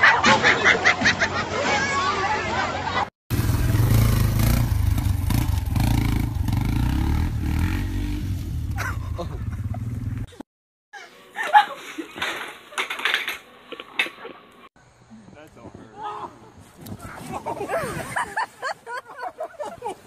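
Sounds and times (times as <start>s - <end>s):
dirt bike engine revving: 3.3s - 10.3s.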